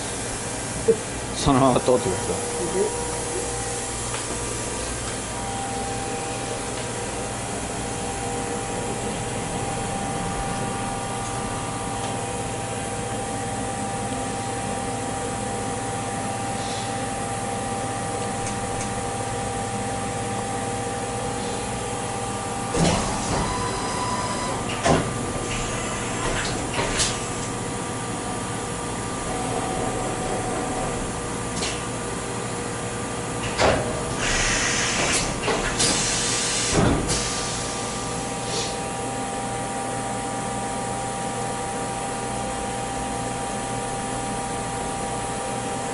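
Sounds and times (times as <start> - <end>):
machine tool humming: 0.0 - 36.6.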